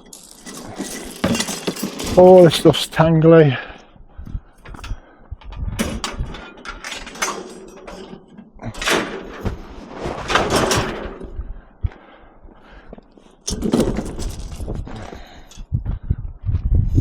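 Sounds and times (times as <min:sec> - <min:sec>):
scrap metal knocking and clattering: 0:00.0 - 0:02.7, 0:05.8 - 0:11.4, 0:13.4 - 0:14.8
metal scraping rattles: 0:00.0 - 0:03.0, 0:04.6 - 0:11.4, 0:13.4 - 0:14.8.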